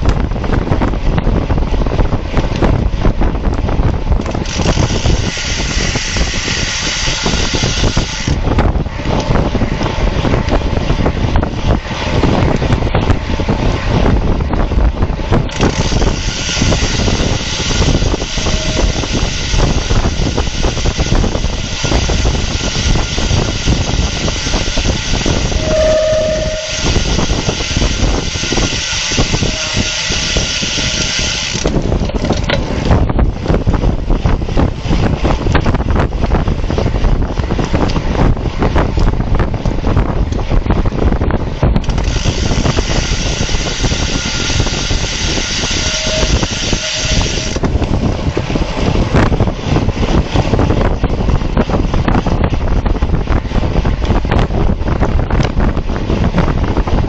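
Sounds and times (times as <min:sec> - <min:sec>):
wind buffeting microphone: 0:00.0 - 0:57.0
brief single tone: 0:25.6 - 0:27.0.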